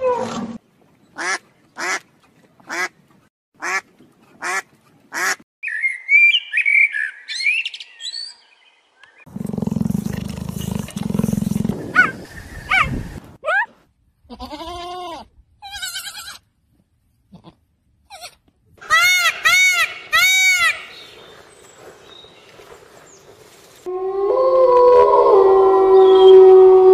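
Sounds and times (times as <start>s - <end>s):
blackbird singing: 5.6s - 9.2s
low rumbling purr: 9.3s - 12.3s.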